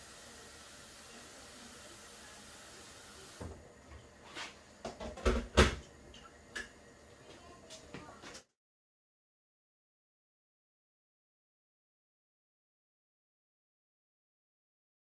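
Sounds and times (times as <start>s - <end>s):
faint steady hiss: 0.0s - 8.3s
kitchen objects knocking and clicking: 4.8s - 6.8s.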